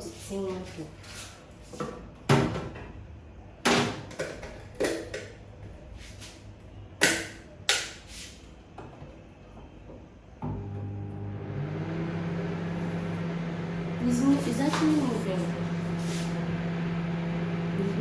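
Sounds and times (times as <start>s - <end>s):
microwave running hum: 10.4s - 18.0s.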